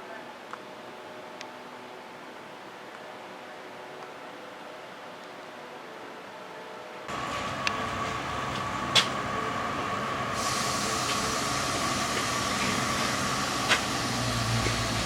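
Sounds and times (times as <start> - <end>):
train running with thin whine: 5.6 - 15.0.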